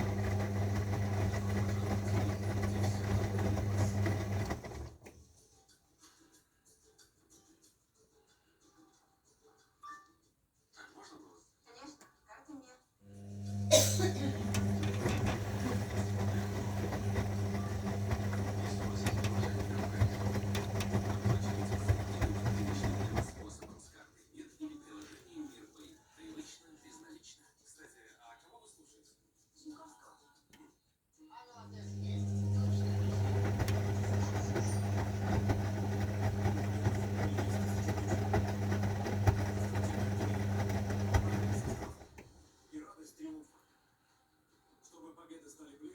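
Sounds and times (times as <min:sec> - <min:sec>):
washing machine running: 0:00.0 - 0:05.3, 0:13.1 - 0:24.0, 0:31.7 - 0:42.6.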